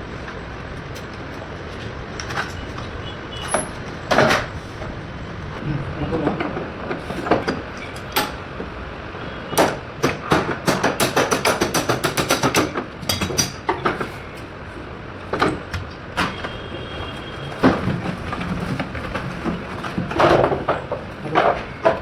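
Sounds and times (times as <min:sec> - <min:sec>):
tools knocking on metal parts: 0:06.2 - 0:08.5, 0:09.6 - 0:14.2, 0:17.6 - 0:22.0.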